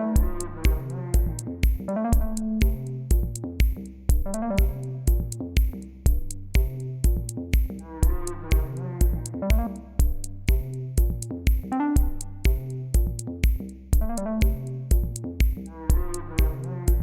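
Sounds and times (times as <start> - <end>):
synthesizer melody: 0.0 - 3.1, 4.2 - 5.2, 7.9 - 10.2, 11.7 - 12.8, 14.0 - 14.9
electronic music: 0.0 - 17.0
steady kick drum beat: 0.0 - 17.0.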